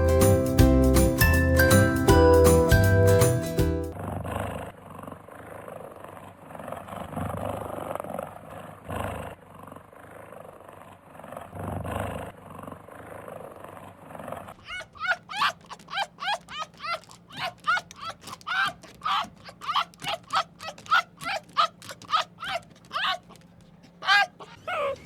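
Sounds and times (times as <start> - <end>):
animal rough breathy calls: 14.5 - 25.0
fast short high calls: 14.6 - 25.0.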